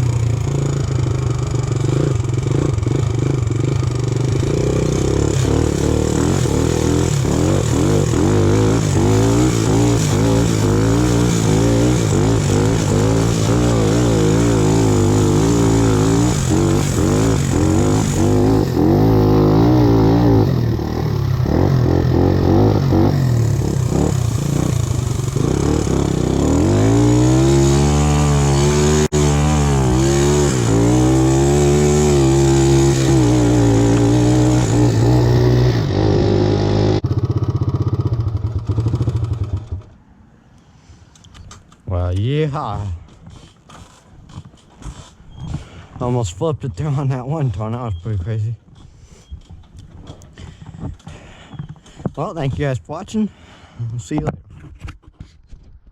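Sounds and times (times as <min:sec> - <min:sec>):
tractor engine running hard: 0:00.0 - 0:39.8.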